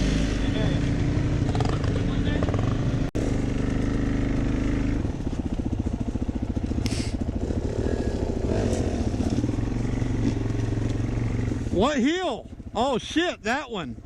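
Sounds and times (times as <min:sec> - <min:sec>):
dirt bike engine running: 0:00.0 - 0:14.0.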